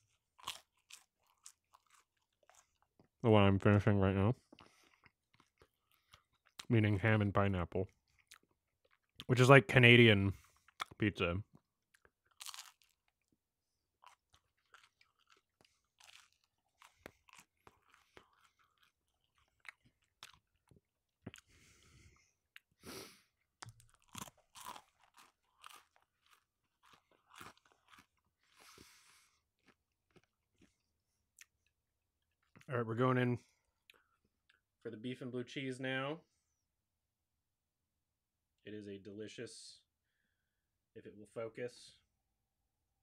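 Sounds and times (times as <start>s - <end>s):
chewing crisp pizza: 0.0s - 3.5s, 4.3s - 7.0s, 7.8s - 32.7s.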